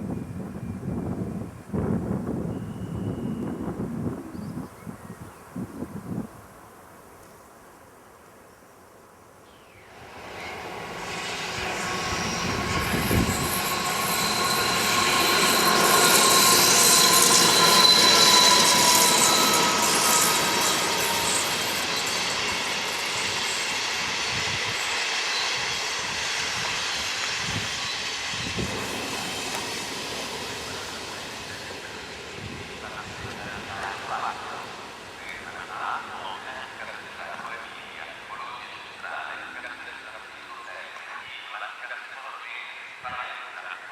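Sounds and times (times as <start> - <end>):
train wheels on rails: 9.9 - 41.2.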